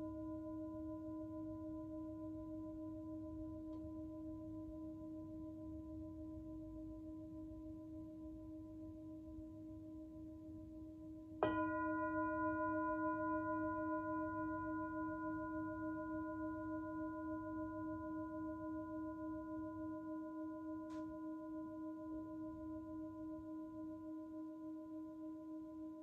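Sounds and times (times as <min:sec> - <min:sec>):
singing bowl ringing: 0:11.4 - 0:26.0.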